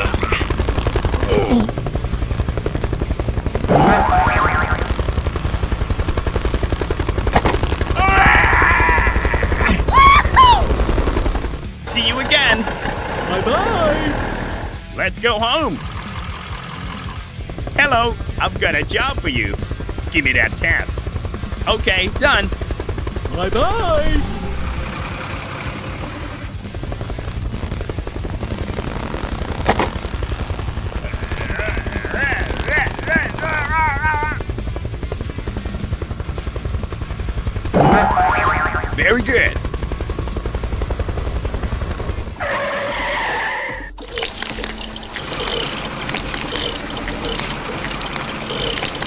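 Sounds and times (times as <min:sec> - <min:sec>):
fast rattling pulse: 0:00.0 - 0:14.9, 0:15.6 - 0:42.6, 0:43.9 - 0:49.0
falling swoops: 0:37.8 - 0:39.0.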